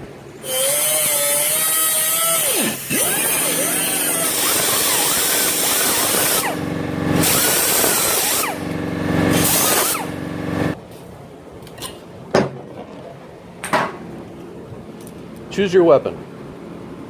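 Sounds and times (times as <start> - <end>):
power tool cutting steel: 0.4 - 10.8.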